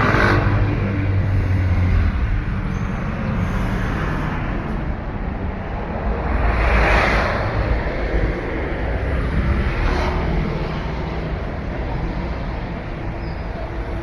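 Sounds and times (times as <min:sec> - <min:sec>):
road traffic engine rumble: 0:00.0 - 0:14.0.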